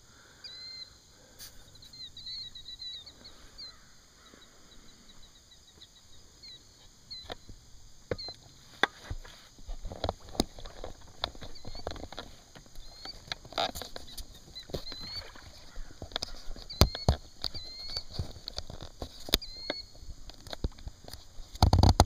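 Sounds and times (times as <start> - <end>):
small birds chirping: 0.0 - 21.6.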